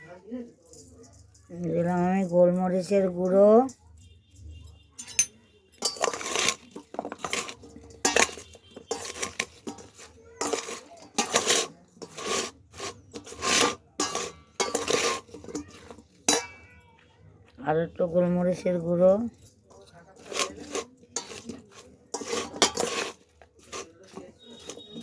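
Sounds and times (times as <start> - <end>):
spoon scraping a bowl: 1.0 - 16.7, 19.2 - 25.0.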